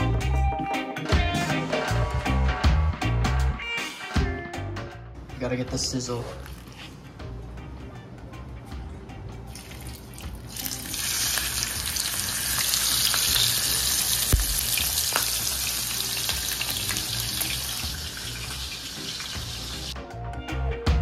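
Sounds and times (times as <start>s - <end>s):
fish sizzling in hot oil: 10.5s - 20.0s.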